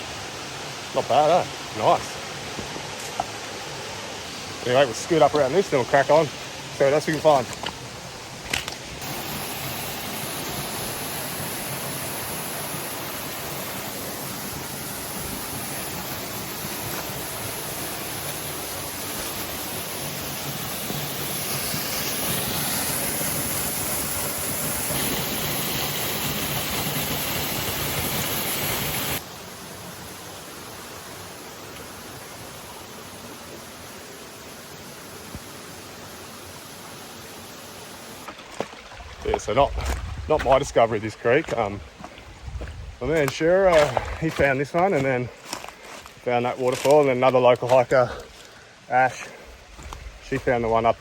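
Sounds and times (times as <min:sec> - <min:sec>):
water rushing over waterfall: 0:09.0 - 0:39.5.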